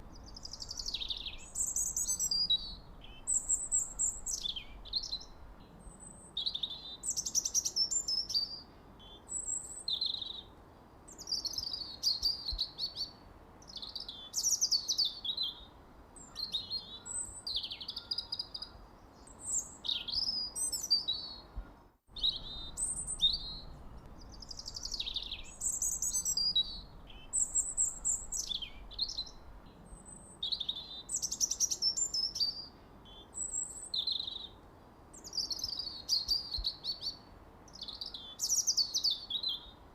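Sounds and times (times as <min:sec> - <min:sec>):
bird chirps whistles and trills: 0:00.3 - 0:05.3, 0:11.2 - 0:13.1, 0:22.2 - 0:23.8, 0:24.4 - 0:29.4, 0:30.0 - 0:34.6, 0:35.2 - 0:37.2, 0:37.8 - 0:39.7.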